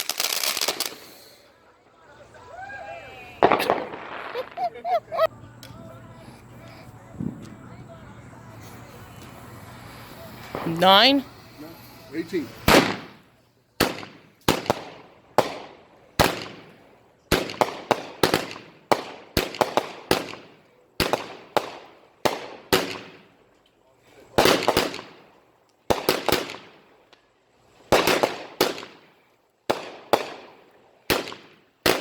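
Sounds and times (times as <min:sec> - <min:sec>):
fireworks bangs with echo: 0:03.4 - 0:04.7, 0:12.5 - 0:23.4, 0:24.3 - 0:26.9, 0:27.9 - 0:32.0.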